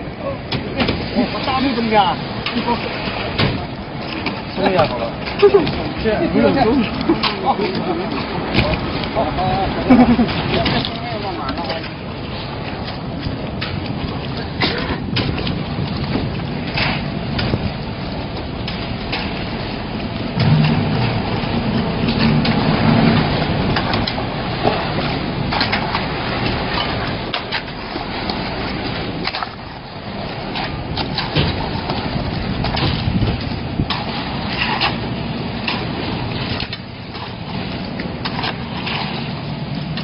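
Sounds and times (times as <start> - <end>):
concrete mixer pump engine hum: 0.0 - 40.0
crackle and rattle of knocks: 13.2 - 28.4, 30.5 - 39.2.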